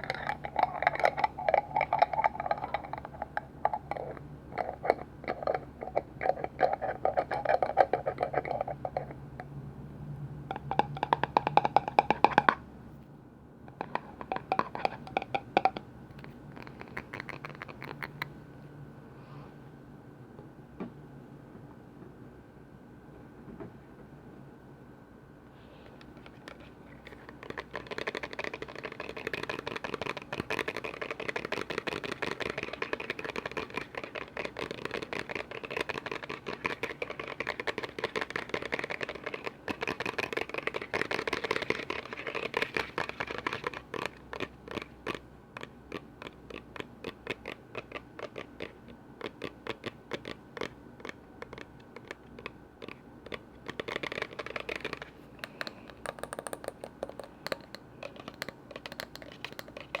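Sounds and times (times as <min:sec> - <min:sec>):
tapping on container lids: 0:10.5 - 0:12.6, 0:13.7 - 0:15.8, 0:27.1 - 0:45.2, 0:53.3 - 1:00.0.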